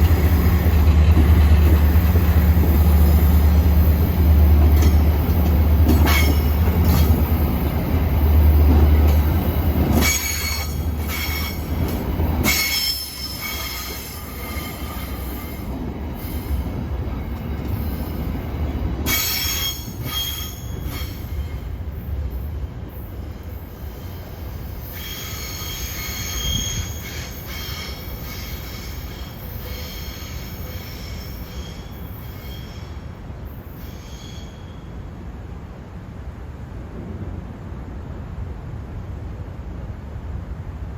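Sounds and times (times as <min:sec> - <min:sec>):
train wheels squealing: 0:00.0 - 0:18.3, 0:19.0 - 0:22.2, 0:23.0 - 0:35.1
train heavy low rumble: 0:00.0 - 0:40.9.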